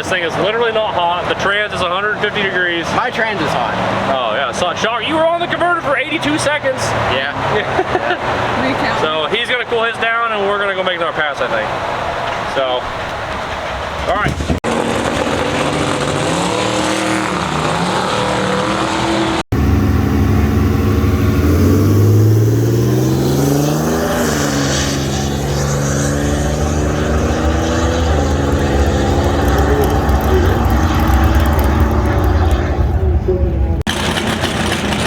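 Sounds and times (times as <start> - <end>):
vehicle engine running hard: 14.6 - 35.0.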